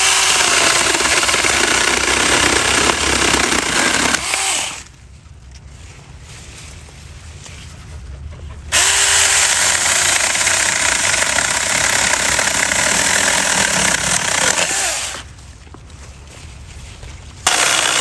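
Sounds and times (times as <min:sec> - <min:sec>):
battery chainsaw cutting branches: 0:00.0 - 0:04.9, 0:08.7 - 0:15.3, 0:17.4 - 0:18.0.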